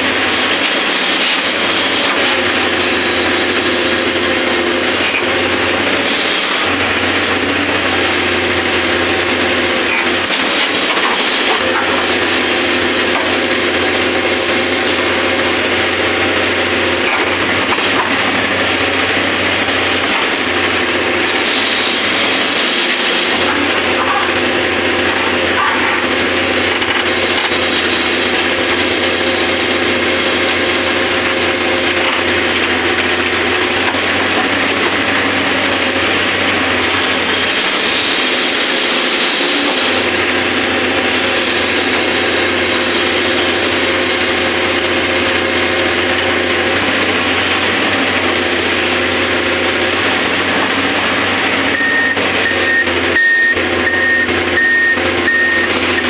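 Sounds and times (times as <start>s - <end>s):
excavator running: 0.0s - 56.0s
high warning beep: 51.7s - 56.0s.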